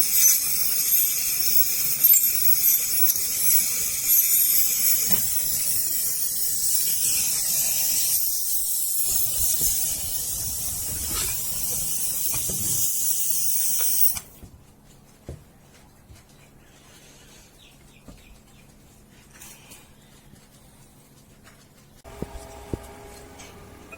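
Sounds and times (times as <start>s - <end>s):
pressurized gas hissing: 0.0s - 14.3s.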